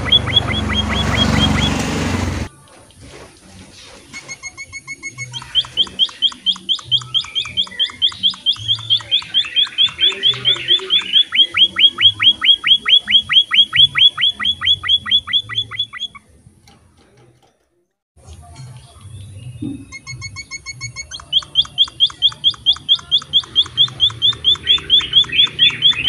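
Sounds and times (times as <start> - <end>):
finch chirping: 0.0 - 1.8, 4.3 - 16.3, 19.4 - 26.0.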